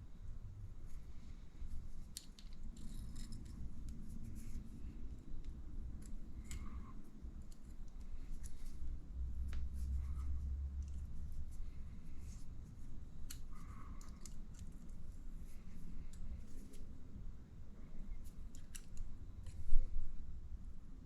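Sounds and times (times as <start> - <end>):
low steady hum: 0.0 - 21.0
small parts clicking and scraping: 0.9 - 8.9, 9.8 - 17.0, 17.9 - 19.8.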